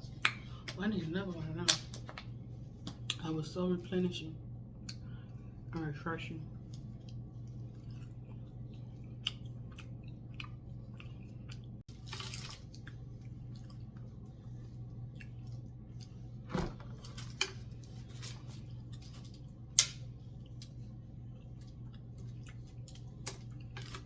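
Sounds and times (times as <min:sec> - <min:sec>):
steady low hum: 0:00.0 - 0:24.0
wet chewing and mouth clicks: 0:06.7 - 0:14.2, 0:15.0 - 0:16.2, 0:19.8 - 0:23.8.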